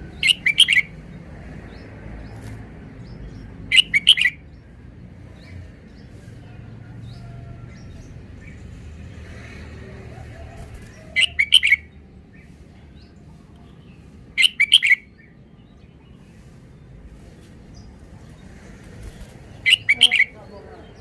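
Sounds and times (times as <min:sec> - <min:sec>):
bird singing short phrases: 0:00.1 - 0:00.9, 0:03.7 - 0:04.4, 0:14.4 - 0:15.1, 0:19.6 - 0:21.0.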